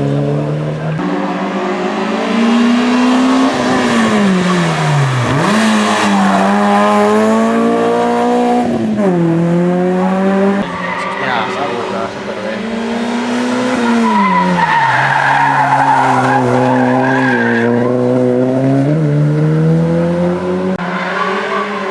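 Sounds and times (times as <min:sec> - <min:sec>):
rally car engine revving: 0:00.0 - 0:21.9.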